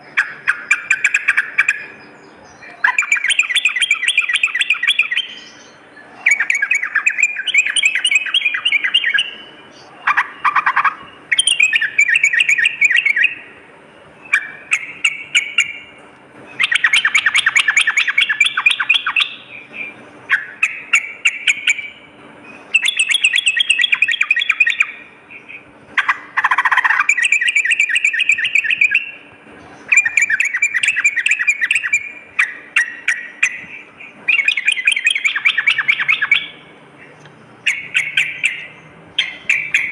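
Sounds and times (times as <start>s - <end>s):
bird chattering song: 0.0s - 39.9s
short low bird calls: 14.2s - 39.9s.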